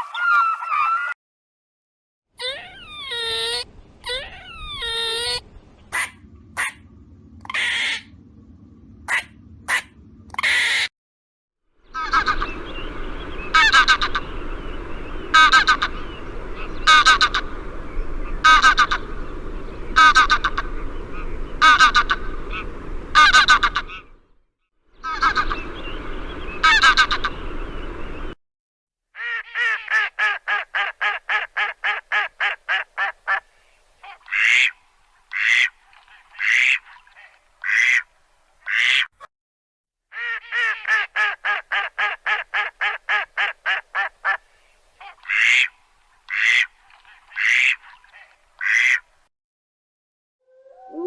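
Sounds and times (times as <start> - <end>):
duck quacking: 4.8 - 6.8, 7.4 - 8.2, 9.1 - 10.9, 11.9 - 12.6, 13.5 - 14.3, 15.3 - 15.9, 16.6 - 17.4, 18.4 - 19.0, 20.0 - 24.1, 25.0 - 25.7, 26.6 - 27.4, 29.2 - 33.4, 34.0 - 35.8, 36.4 - 39.3, 40.1 - 44.4, 45.0 - 46.7, 47.3 - 49.0
noisy sound: 5.4 - 10.5.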